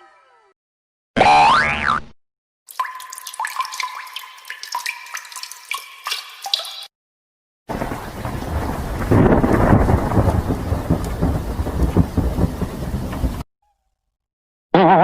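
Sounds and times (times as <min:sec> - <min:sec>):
water drip plinks: 0:02.7 - 0:06.9
rain and thunderstorm: 0:07.7 - 0:13.4.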